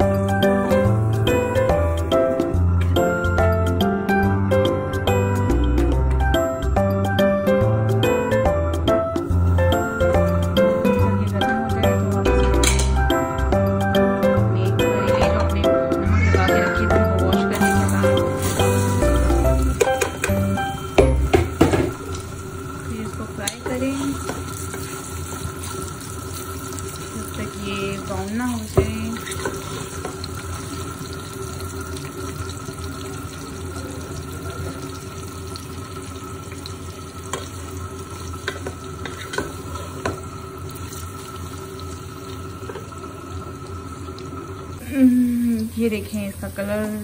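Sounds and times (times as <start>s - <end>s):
vegetables sizzling in oil: 9.2s - 47.0s
wooden spoon knocking on pot: 19.7s - 22.1s, 28.7s - 30.2s.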